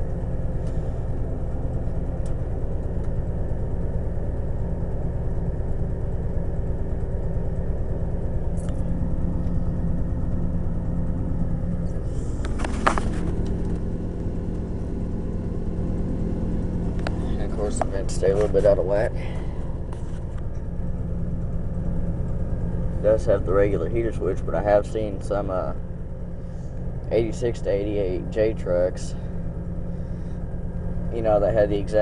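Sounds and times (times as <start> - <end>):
heater blower: 0.0 - 25.6
vee eight engine running with a miss: 11.6 - 25.8.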